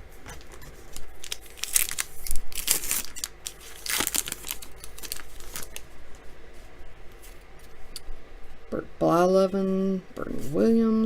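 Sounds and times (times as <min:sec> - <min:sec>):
foil wrapper tearing and crinkling: 0:00.4 - 0:05.9.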